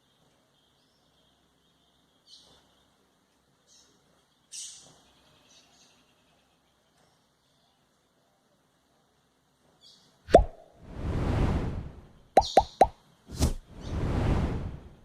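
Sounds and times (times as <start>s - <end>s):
bird chirping: 0.0s - 8.1s, 12.2s - 13.0s
faint steady hiss: 0.0s - 15.0s.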